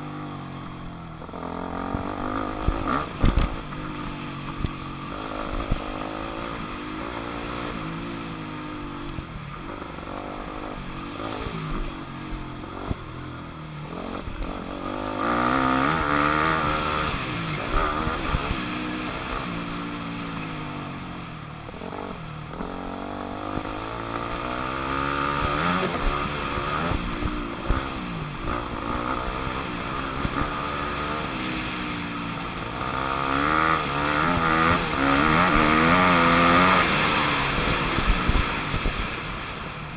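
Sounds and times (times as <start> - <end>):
dirt bike engine revving: 1.2 - 4.2, 13.8 - 20.6, 21.8 - 39.2.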